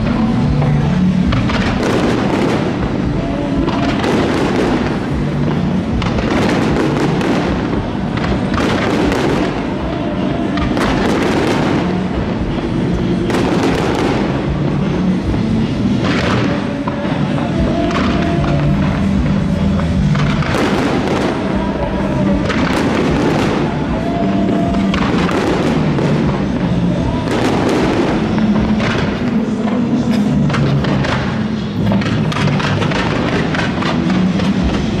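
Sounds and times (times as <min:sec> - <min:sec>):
fireworks bursting: 0:00.0 - 0:35.0
music playing: 0:00.0 - 0:35.0.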